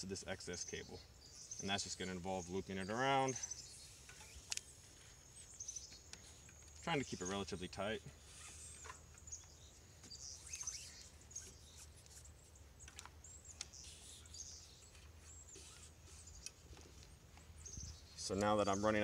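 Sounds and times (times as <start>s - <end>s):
faint high bird chirps: 0.0s - 19.0s
soft clicks of cord winding: 4.0s - 6.9s, 14.8s - 17.5s.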